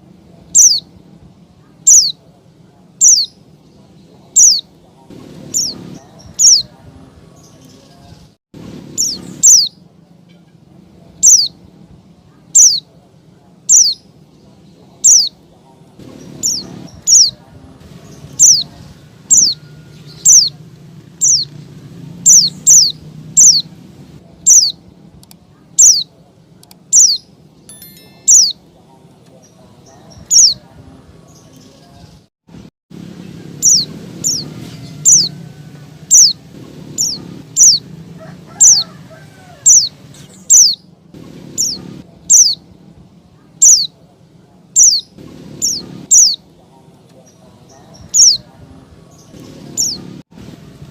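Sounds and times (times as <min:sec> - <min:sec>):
bird high chirps: 0:00.5 - 0:00.9, 0:01.8 - 0:02.2, 0:03.0 - 0:03.4, 0:04.3 - 0:04.7, 0:05.4 - 0:06.7, 0:09.0 - 0:09.8, 0:11.2 - 0:11.6, 0:12.6 - 0:12.9, 0:13.7 - 0:14.0, 0:15.0 - 0:15.4, 0:16.1 - 0:20.6, 0:21.2 - 0:21.6, 0:22.2 - 0:23.8, 0:24.5 - 0:24.8, 0:25.8 - 0:26.1, 0:26.9 - 0:28.7, 0:29.9 - 0:30.6, 0:33.6 - 0:35.4, 0:36.1 - 0:37.9, 0:38.6 - 0:38.9, 0:39.6 - 0:40.8, 0:41.5 - 0:42.6, 0:43.6 - 0:43.9, 0:44.8 - 0:46.4, 0:47.8 - 0:48.5, 0:49.2 - 0:50.1
low background hum: 0:32.5 - 0:50.9.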